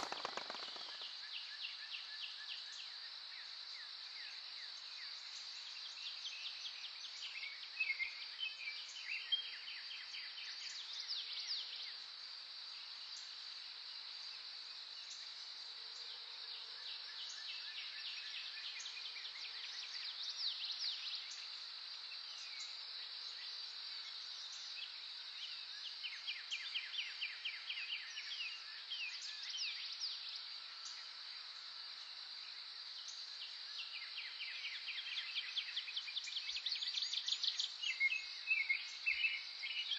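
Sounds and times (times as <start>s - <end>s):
songbirds trilling: 0.0s - 1.2s.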